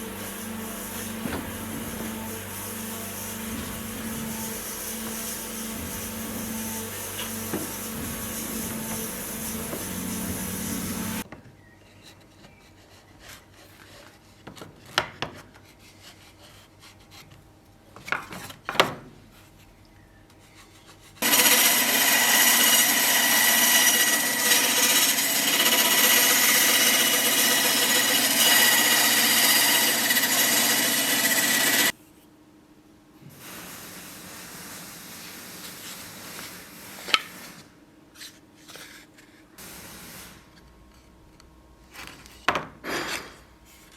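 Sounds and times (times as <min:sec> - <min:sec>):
power tool running: 0:00.0 - 0:11.2, 0:21.2 - 0:31.9.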